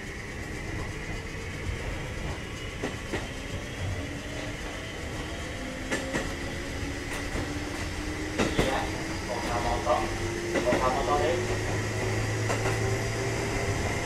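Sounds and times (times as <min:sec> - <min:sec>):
electric train motor whine: 0:00.0 - 0:14.0
rail-joint clacks: 0:00.0 - 0:14.0.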